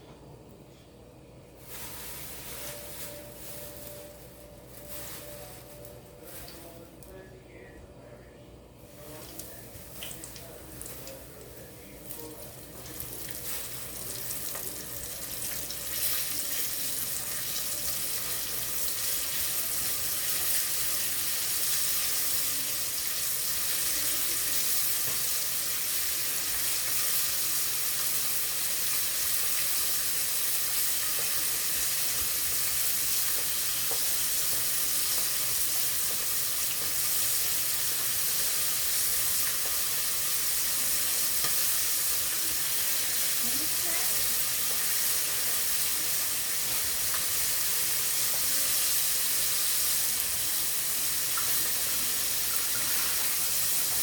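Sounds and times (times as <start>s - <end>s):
chicken sizzling in hot oil: 1.6s - 6.6s, 8.9s - 54.0s.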